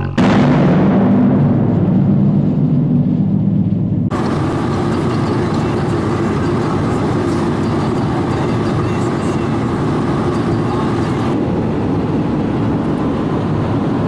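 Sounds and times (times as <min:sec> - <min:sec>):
car engine and road noise: 0:01.5 - 0:14.0.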